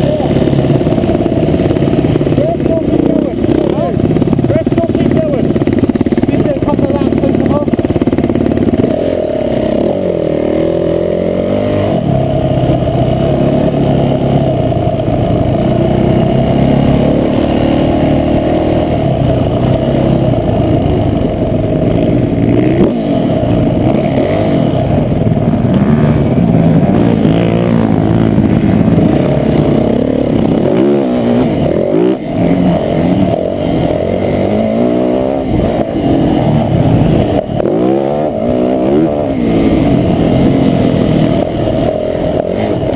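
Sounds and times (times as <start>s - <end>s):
motocross bike engine revving: 0.0s - 42.9s.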